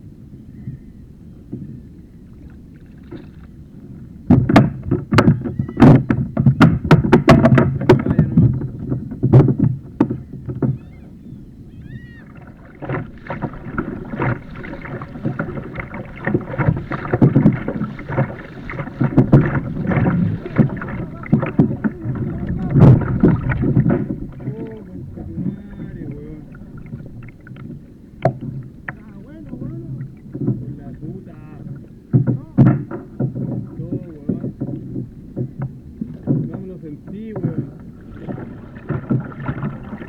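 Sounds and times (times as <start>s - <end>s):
water splashing against kayak: 0.0s - 40.0s
sharp knocks: 4.3s - 10.8s, 12.8s - 24.8s, 32.1s - 40.0s.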